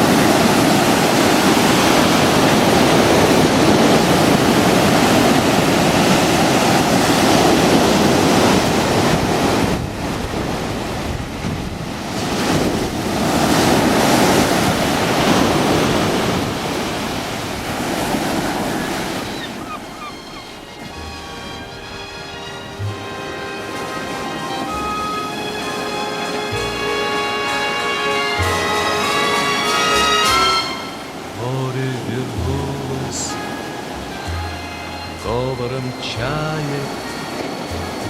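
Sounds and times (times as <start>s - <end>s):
wind buffeting microphone: 0.0s - 30.1s
waves breaking on shore: 0.0s - 38.0s.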